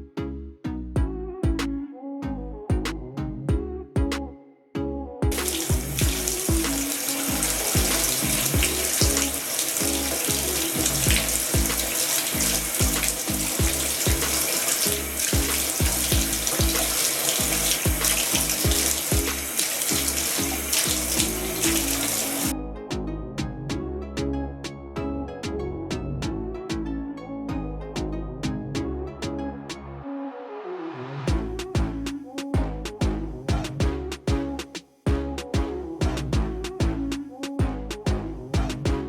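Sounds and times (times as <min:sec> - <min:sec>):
background music with steady beat: 0:00.0 - 0:30.1, 0:31.1 - 0:39.0
water running from a tap: 0:05.3 - 0:22.5.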